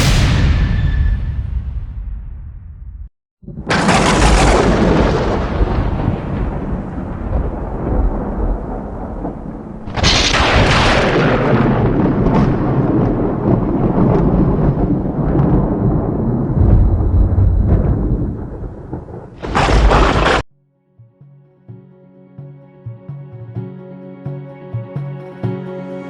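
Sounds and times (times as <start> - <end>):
deep rumbling booms: 0.0 - 20.5
sudden crash: 0.0 - 20.5.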